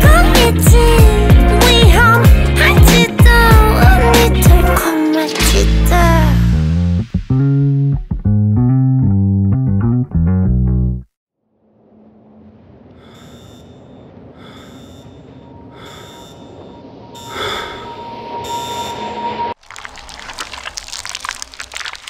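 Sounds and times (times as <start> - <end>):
dense crackling: 19.6 - 22.0.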